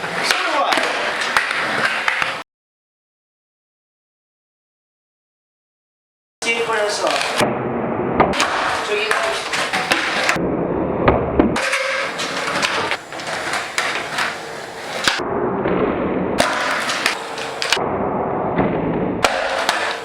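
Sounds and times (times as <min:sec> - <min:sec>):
skateboard clacks and thuds: 0:00.0 - 0:02.4, 0:07.0 - 0:07.6, 0:08.2 - 0:17.9, 0:18.5 - 0:20.0
skateboard rolling: 0:00.0 - 0:02.4, 0:06.6 - 0:20.0.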